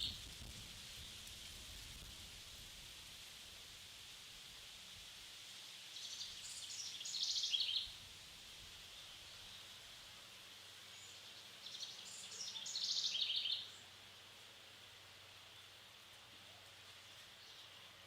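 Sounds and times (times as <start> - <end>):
faint background hiss: 0.0 - 18.0
songbird trilling: 6.0 - 7.9, 11.0 - 13.8.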